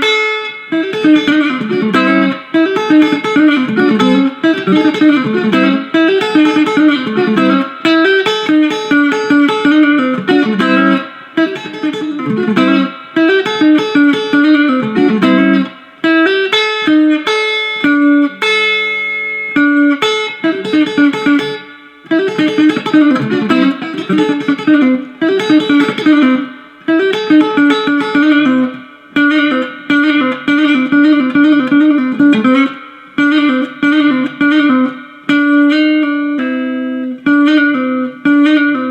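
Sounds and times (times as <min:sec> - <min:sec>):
guitar chord ringing: 0:00.0 - 0:38.9.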